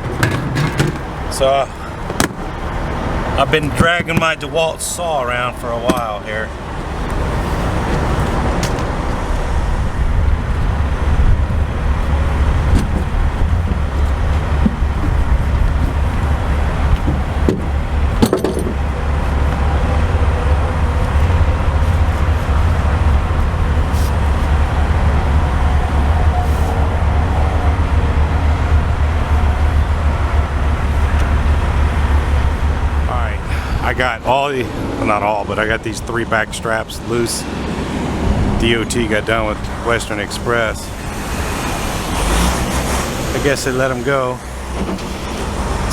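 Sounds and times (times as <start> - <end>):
loud clatter: 0.0 - 1.2
low rumble of vehicle engines: 0.0 - 45.9.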